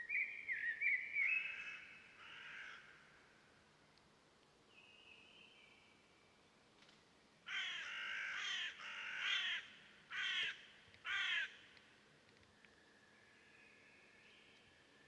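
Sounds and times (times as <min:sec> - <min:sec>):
bird cawing: 0:01.5 - 0:03.1, 0:07.5 - 0:11.6.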